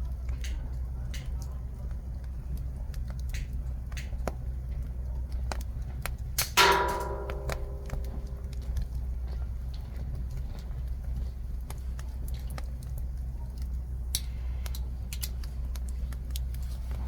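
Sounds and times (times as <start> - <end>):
wood fire crackling and popping: 0.0 - 8.6
loud ringing metal clank: 6.6 - 8.6.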